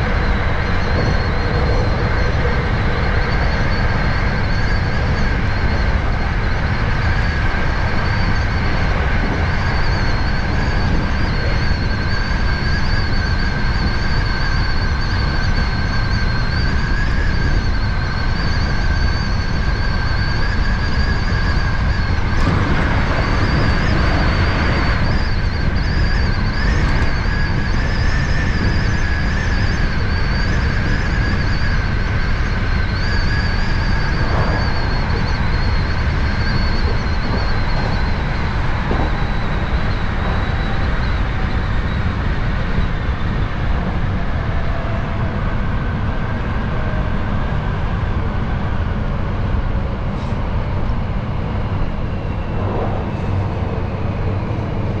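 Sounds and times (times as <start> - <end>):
high-pitched whines: 0.0 - 55.0
train low rumble: 0.0 - 55.0
loud rushing noise: 21.8 - 27.6, 51.9 - 55.0.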